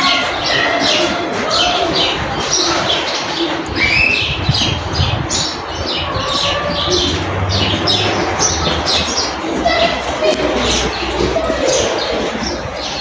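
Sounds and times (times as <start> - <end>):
flock of birds chirping: 0.0 - 13.0
low rumble: 5.0 - 11.0.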